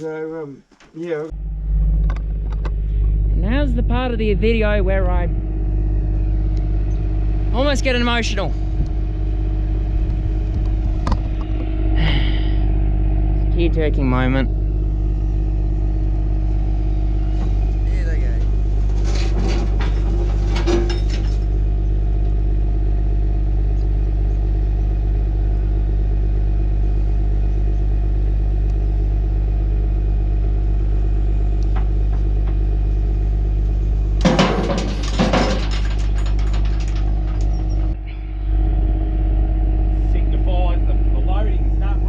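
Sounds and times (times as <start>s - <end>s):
diesel engine idling: 0.0s - 42.0s
metallic clanks and rattles: 18.4s - 21.6s, 34.2s - 38.0s.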